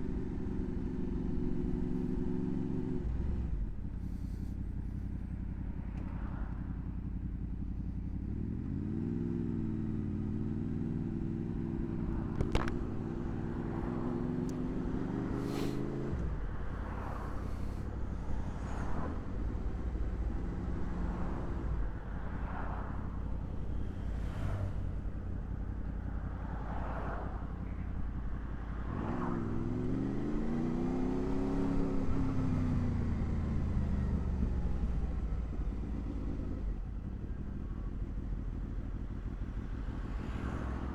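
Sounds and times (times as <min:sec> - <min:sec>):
motorcycle engine revving: 0:00.0 - 0:23.2
wind and road noise: 0:00.0 - 0:40.9.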